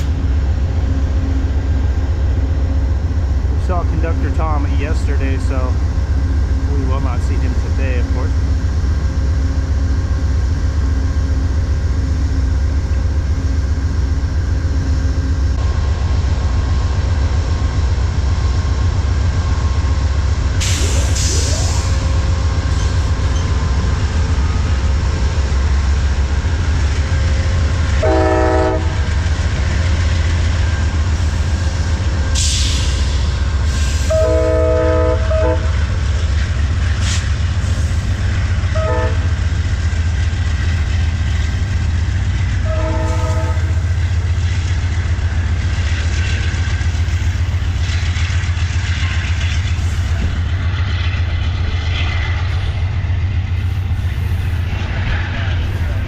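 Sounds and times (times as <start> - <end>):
diesel locomotives rumbling: 0.0 - 56.0
multi-chime train horn blasts: 28.0 - 29.0, 34.1 - 35.7, 38.8 - 39.3, 42.6 - 43.8.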